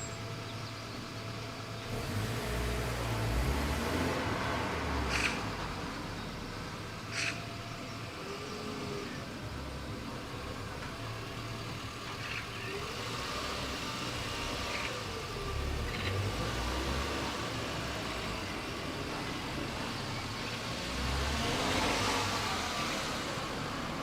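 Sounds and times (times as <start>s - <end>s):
outdoor rumble and hiss: 0.0s - 24.0s
faint short bird calls: 7.1s - 8.0s.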